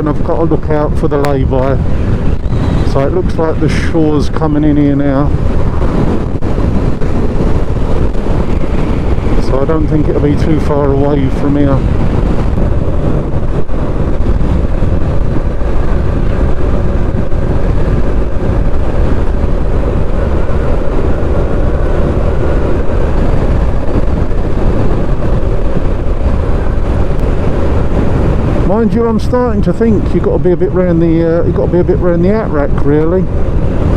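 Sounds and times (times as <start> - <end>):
wind rush over microphone: 0.0 - 33.9
motorcycle engine cruising: 1.8 - 28.8.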